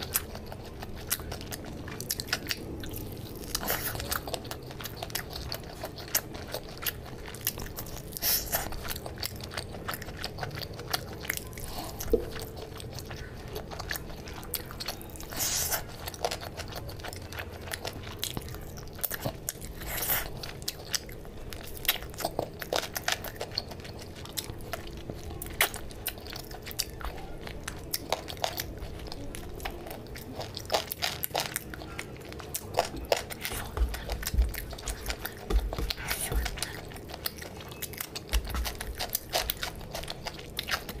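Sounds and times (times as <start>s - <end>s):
chewing and biting food: 0.0s - 41.0s.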